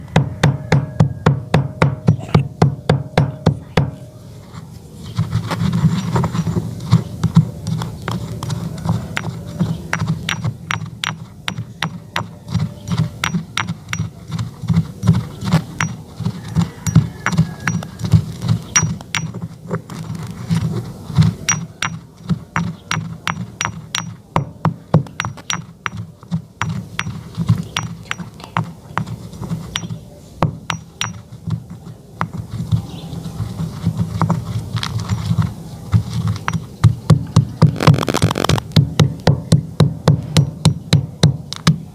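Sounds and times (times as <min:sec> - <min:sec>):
chalk crunching: 0:04.3 - 0:10.3, 0:12.2 - 0:23.2, 0:30.8 - 0:36.7, 0:37.6 - 0:38.7.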